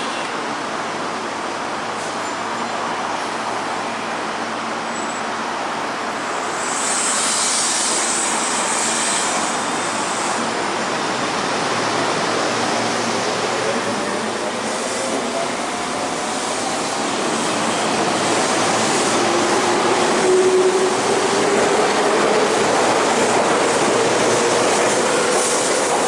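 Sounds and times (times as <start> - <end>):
train hissing noise: 6.1 - 26.0.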